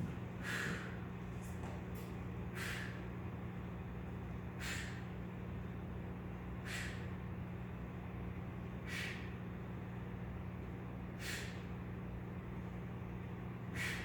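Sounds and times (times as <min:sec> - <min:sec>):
steady low hum: 0:00.0 - 0:14.0
man breathing out sharply: 0:00.4 - 0:01.0, 0:02.5 - 0:03.0, 0:04.5 - 0:05.1, 0:06.6 - 0:07.2, 0:08.8 - 0:09.4, 0:11.2 - 0:11.7, 0:13.7 - 0:14.0.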